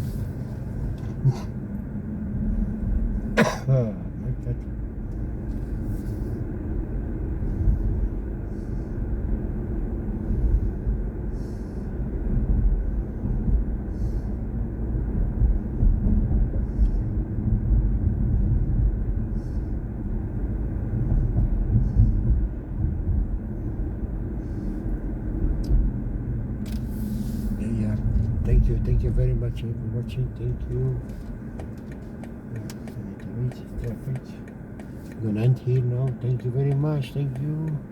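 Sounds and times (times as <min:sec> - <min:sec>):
road and tyre rumble: 0:00.0 - 0:37.9.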